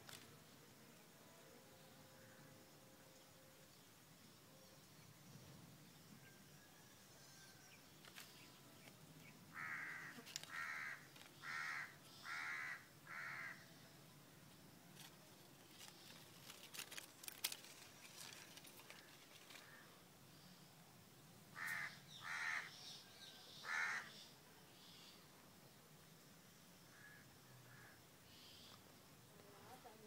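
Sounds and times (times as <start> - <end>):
bird harsh calls: 21.6 - 24.3.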